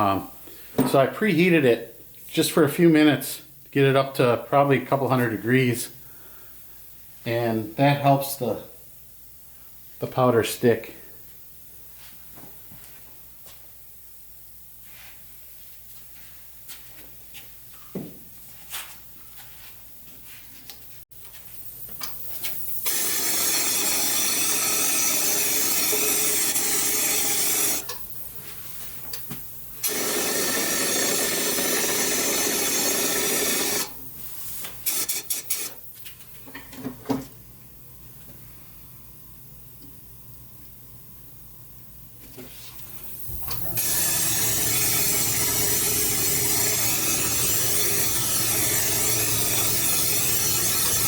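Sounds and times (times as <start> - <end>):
spray gun hissing: 22.9 - 27.9, 29.8 - 35.8, 43.6 - 51.0.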